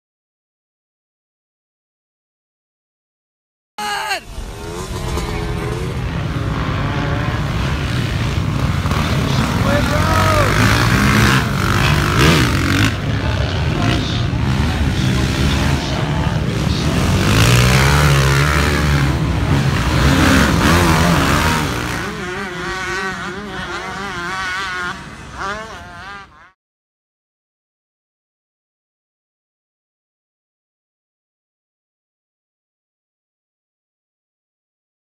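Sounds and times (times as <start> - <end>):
motocross bike engines revving: 4.2 - 26.6.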